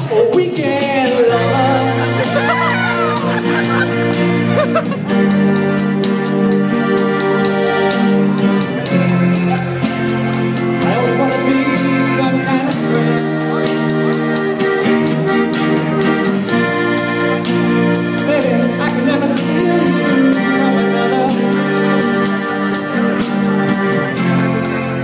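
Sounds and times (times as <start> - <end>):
organ-like chords: 0.0 - 25.0.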